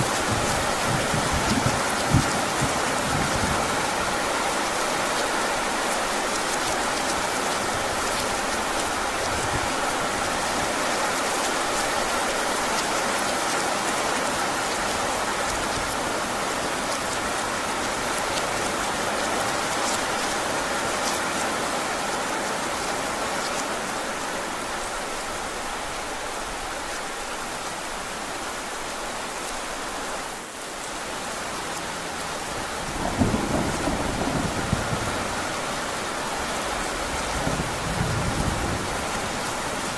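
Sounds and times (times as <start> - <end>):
thunder rumbling: 0.0 - 3.9, 32.6 - 35.8, 36.8 - 39.9
heavy rain: 0.0 - 39.9.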